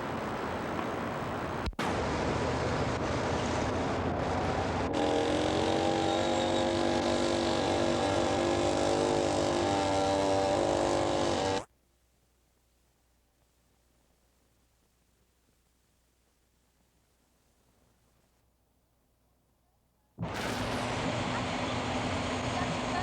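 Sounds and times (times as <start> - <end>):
droning multi-pitch hum: 1.8 - 11.7, 20.2 - 23.0.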